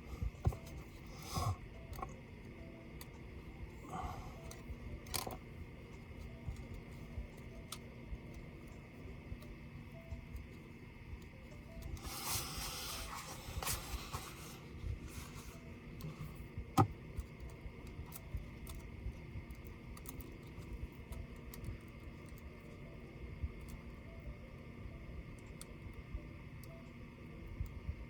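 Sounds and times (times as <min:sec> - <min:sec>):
scraping rub on laptop: 0:12.0 - 0:16.3
small clicks and taps: 0:16.0 - 0:22.8.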